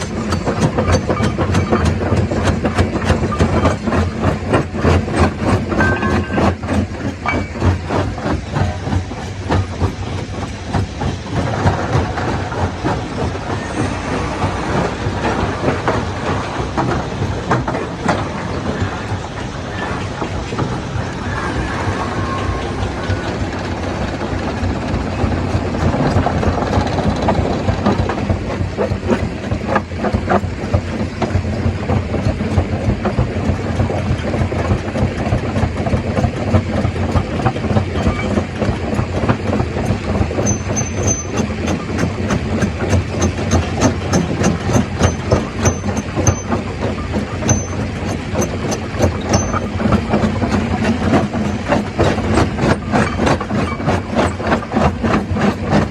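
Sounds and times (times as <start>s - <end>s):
stone crusher drone: 0.0s - 32.4s.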